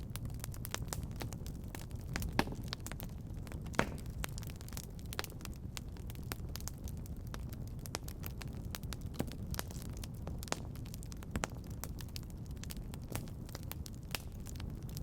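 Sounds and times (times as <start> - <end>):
low rumble of flames: 0.0 - 15.0
small fire crackles: 0.0 - 15.0
loud wood pops: 3.7 - 4.5.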